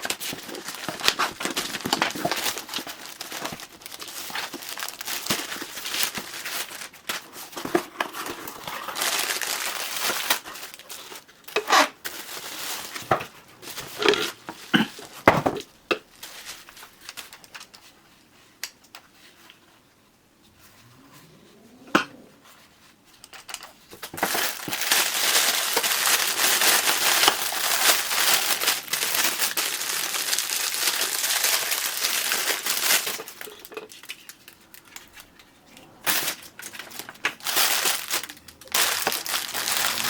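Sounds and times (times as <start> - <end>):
packaging crinkling: 0.0 - 15.2, 24.0 - 40.0.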